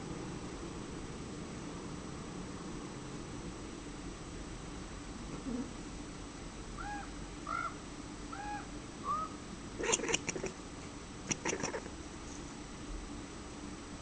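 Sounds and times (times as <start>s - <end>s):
cat chirping: 9.8s - 10.5s, 11.3s - 11.9s
cat clicking chatter: 9.8s - 10.5s, 11.3s - 11.9s.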